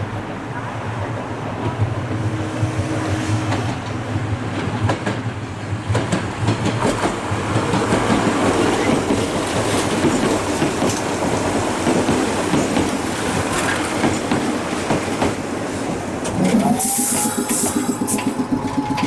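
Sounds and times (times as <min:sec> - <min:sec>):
train wheels clacking over joints: 0:01.6 - 0:19.0
electric train low hum: 0:15.3 - 0:19.0.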